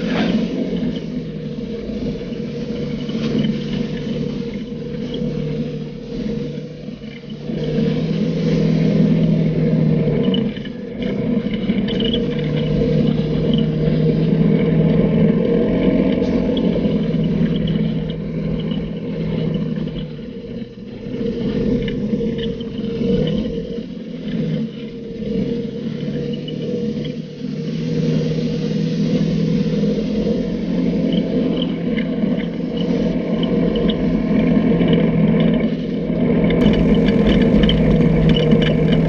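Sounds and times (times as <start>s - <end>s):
off-road vehicle engine revving: 0.0s - 39.0s.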